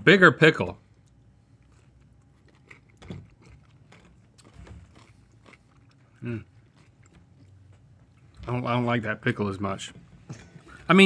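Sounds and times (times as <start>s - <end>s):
person chewing crunchy pickle: 0.8s - 8.5s.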